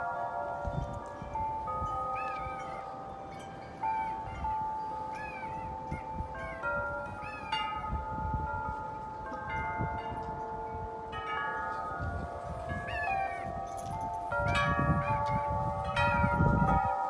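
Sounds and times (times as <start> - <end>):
wind chimes ringing: 0.0 - 17.0
low wind rumble: 12.0 - 17.0.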